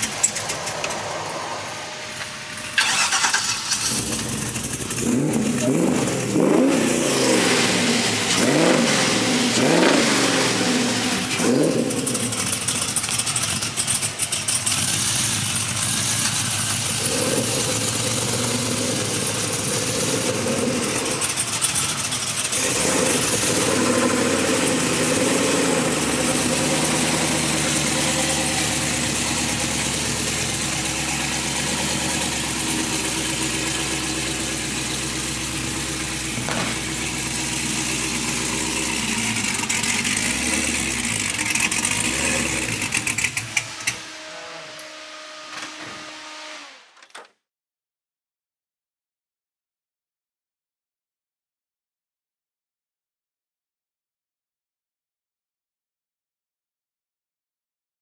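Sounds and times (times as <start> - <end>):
car engine running: 0.0 - 44.5.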